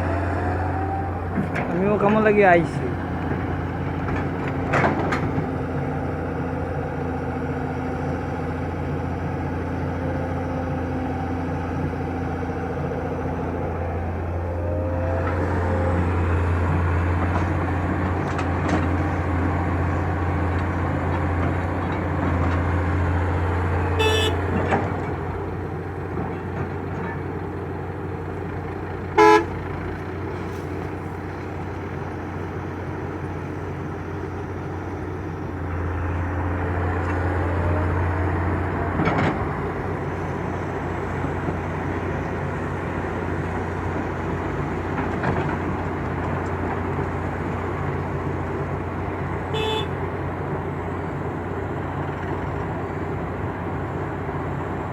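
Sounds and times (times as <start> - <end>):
heavy machine engine running: 0.0 - 54.9
vehicle horn toots: 14.4 - 16.8, 24.0 - 24.6, 29.2 - 29.6, 49.5 - 50.1.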